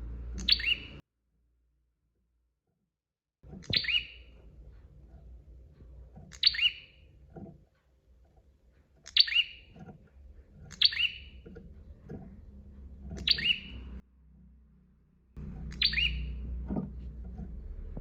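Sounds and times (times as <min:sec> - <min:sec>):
bird chirping calls: 0:00.3 - 0:01.0, 0:03.6 - 0:04.4, 0:06.2 - 0:07.2, 0:09.0 - 0:14.0, 0:15.4 - 0:16.5.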